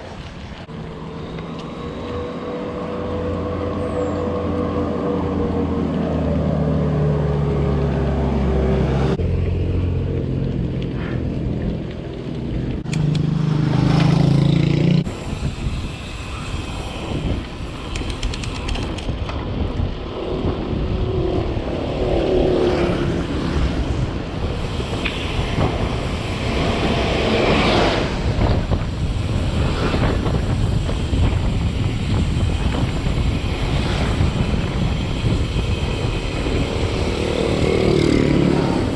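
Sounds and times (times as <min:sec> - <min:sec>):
rough rumble of bike riding: 0:00.0 - 0:38.9
wind buffeting microphone: 0:15.0 - 0:38.9.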